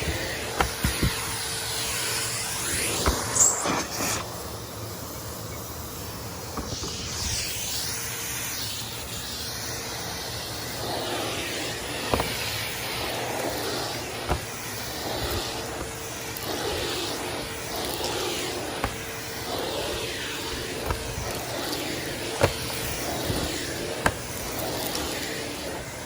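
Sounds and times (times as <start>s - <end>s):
vacuum cleaner suction hiss: 0.0s - 26.0s
debris rattling up hose: 11.9s - 25.9s.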